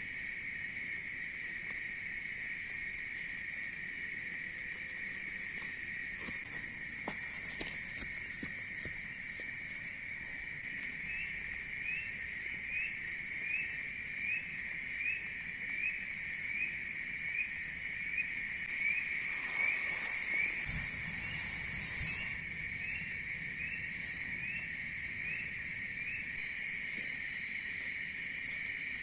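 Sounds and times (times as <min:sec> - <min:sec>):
insect chorus: 0:00.0 - 0:29.0
rising insect chirp: 0:00.0 - 0:29.0
rustle: 0:16.4 - 0:29.0.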